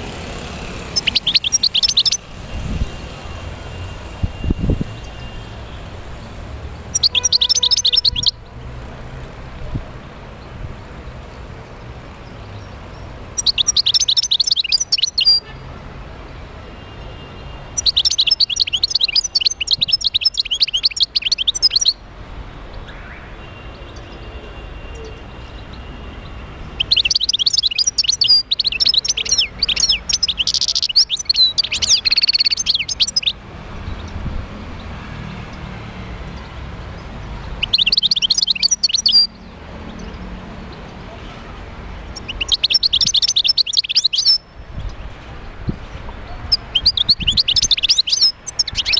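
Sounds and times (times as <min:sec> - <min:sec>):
goldfinch singing: 0:00.8 - 0:02.2, 0:06.9 - 0:08.4, 0:13.3 - 0:15.5, 0:17.8 - 0:22.0, 0:26.7 - 0:34.2, 0:37.4 - 0:40.2, 0:42.1 - 0:44.5, 0:46.4 - 0:48.9.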